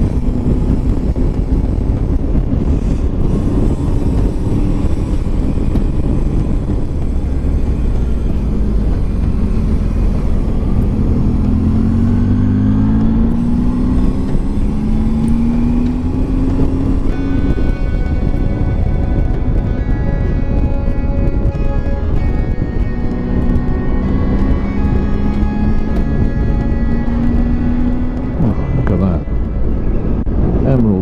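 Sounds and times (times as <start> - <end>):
motorcycle engine accelerating: 0.0 - 31.0
wind and road noise: 0.0 - 31.0.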